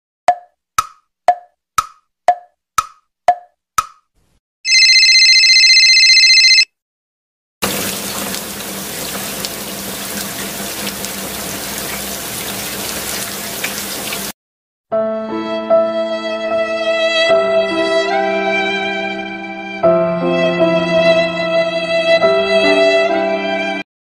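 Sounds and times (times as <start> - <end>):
metronome ticking: 0.3 - 4.1
electronic telephone ring: 4.7 - 6.7
steady rainfall: 7.6 - 14.3.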